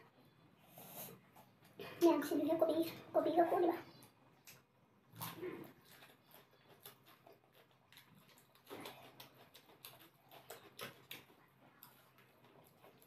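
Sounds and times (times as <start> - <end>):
person chewing food: 4.0 - 13.0.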